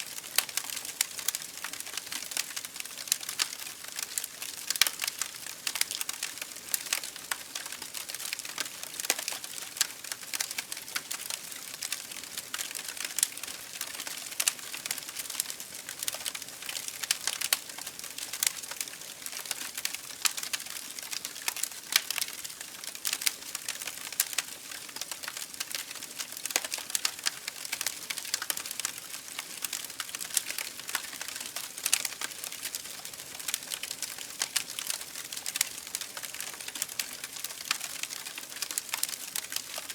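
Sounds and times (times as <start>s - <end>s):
campfire wood crackling and popping: 0.0s - 39.9s.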